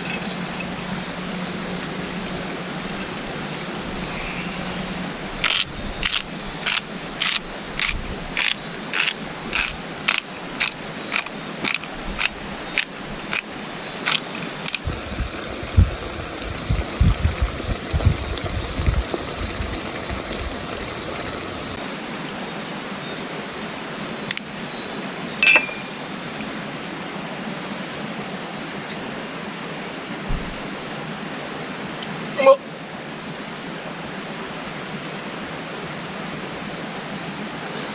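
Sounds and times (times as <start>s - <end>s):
water rushing: 9.1s - 22.2s, 26.6s - 31.5s
low irregular thuds: 30.3s - 30.7s.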